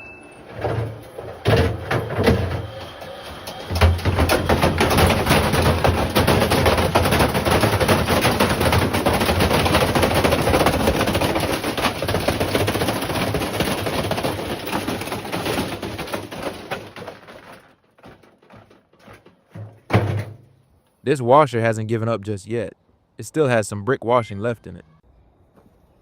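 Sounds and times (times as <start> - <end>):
bricks banging in washing machine: 0.5 - 20.6.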